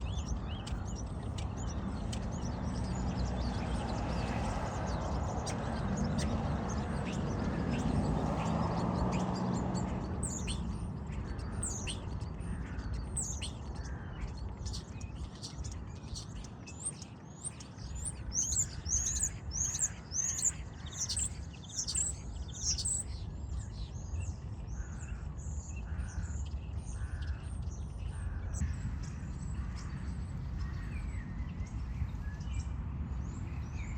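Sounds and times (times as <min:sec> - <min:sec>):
starlings singing: 0:00.0 - 0:33.9
steady background rumble: 0:17.9 - 0:33.9.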